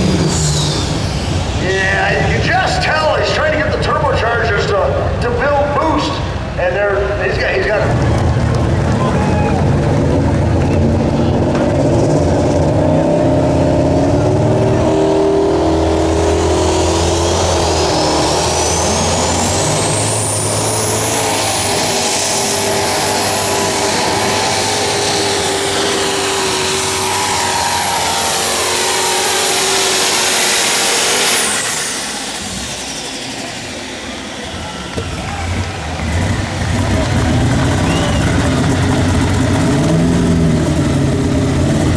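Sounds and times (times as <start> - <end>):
diesel engine under load: 0.0 - 41.9
turbo whine: 15.5 - 41.9.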